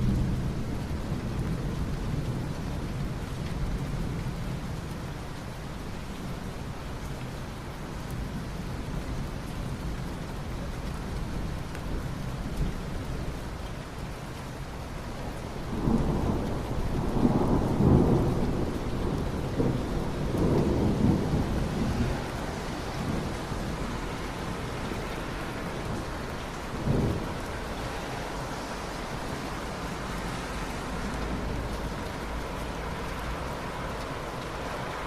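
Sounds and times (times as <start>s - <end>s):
steady rain: 0.0s - 35.0s
thunder rumbling: 15.7s - 35.0s.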